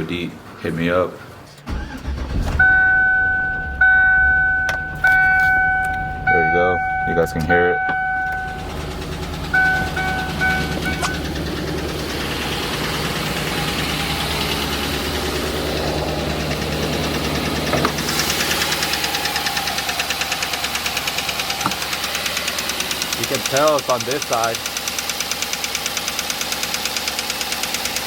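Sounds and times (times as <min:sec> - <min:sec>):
engine idling with misfire: 0:00.0 - 0:28.0
vehicle warning chime beeps: 0:02.6 - 0:08.8, 0:09.4 - 0:11.3
rhythmic lifter tick: 0:20.1 - 0:27.5.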